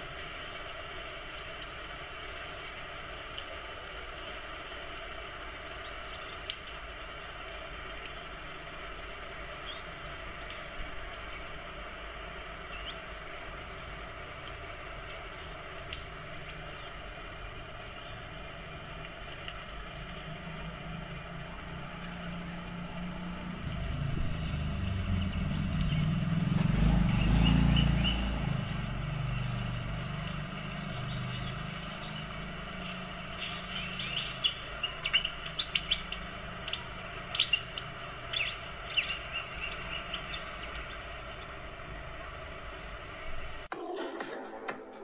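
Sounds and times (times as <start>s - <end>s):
birds chirping: 0.0s - 44.0s
low rumble: 19.8s - 32.8s.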